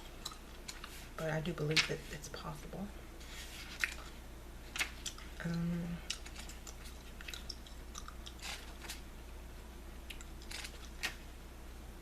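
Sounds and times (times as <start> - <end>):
gum chewing wet smacks: 0.1 - 0.9, 4.8 - 9.0.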